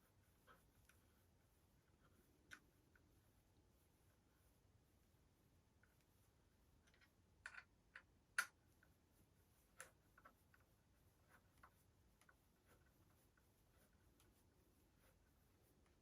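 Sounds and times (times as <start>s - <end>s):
faint clicks and taps: 0.2s - 3.2s, 6.8s - 9.0s, 9.6s - 16.0s.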